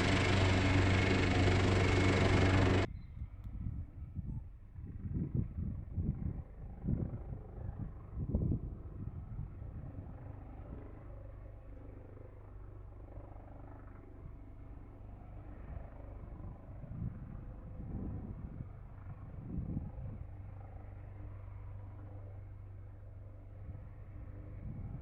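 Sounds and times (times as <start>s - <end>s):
wind buffeting microphone: 0.0s - 10.1s
distant helicopter hum: 0.0s - 25.0s.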